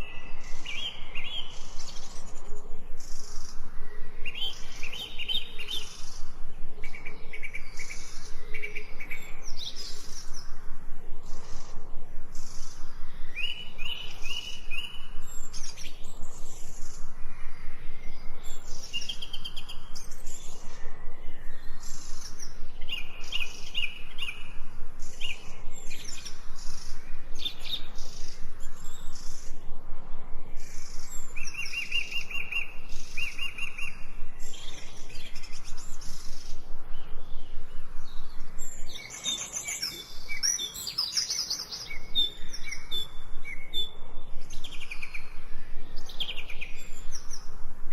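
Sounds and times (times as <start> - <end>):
songbirds singing and chirping: 0.0 - 47.9
rapid bird trills: 30.5 - 47.9.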